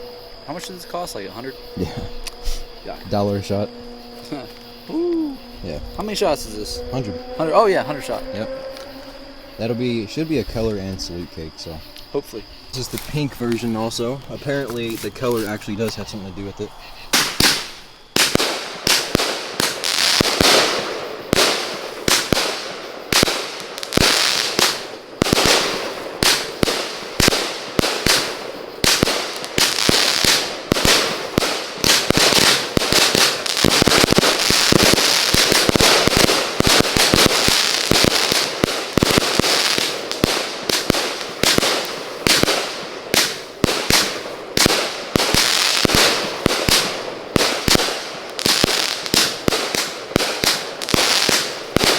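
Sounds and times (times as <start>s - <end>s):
fireworks hiss and crackle: 0.0s - 51.9s
fireworks bangs: 17.0s - 51.9s.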